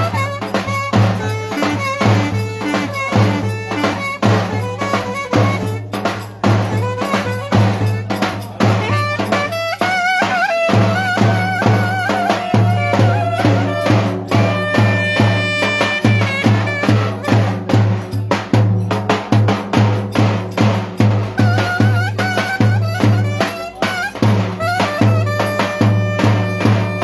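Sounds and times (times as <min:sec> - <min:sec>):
wavering folk melody: 0:00.0 - 0:17.4
fast drum beat: 0:00.0 - 0:27.0.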